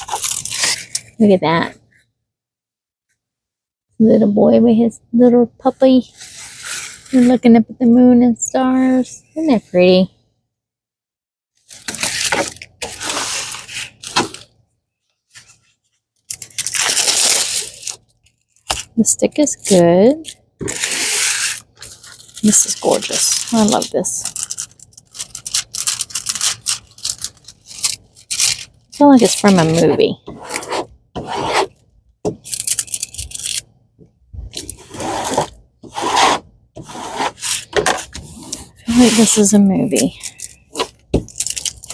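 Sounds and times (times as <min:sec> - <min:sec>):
plastic packaging crinkling: 0:00.0 - 0:01.2, 0:11.6 - 0:14.5, 0:16.2 - 0:19.0, 0:20.6 - 0:30.0, 0:32.4 - 0:33.7, 0:37.4 - 0:41.9
rubbing and scraping of a kit: 0:06.1 - 0:07.6, 0:11.7 - 0:14.5, 0:20.6 - 0:33.6, 0:34.4 - 0:41.9.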